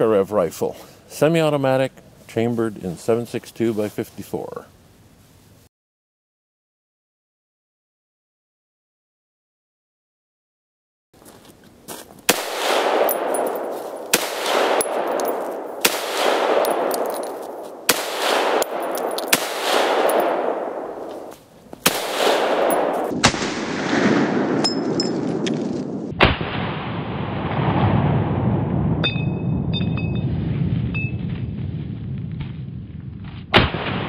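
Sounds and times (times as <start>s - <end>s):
rifle shots with echo: 12.3s - 25.4s, 33.5s - 34.0s.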